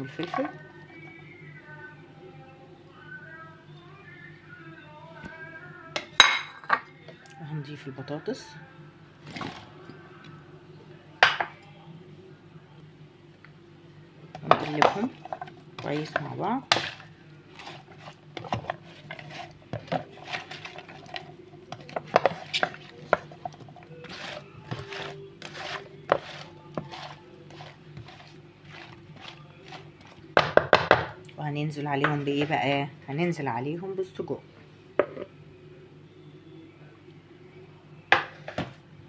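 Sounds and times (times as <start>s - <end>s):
steady low hum: 0.0s - 39.0s
utensil scraping baking tray: 14.4s - 30.1s.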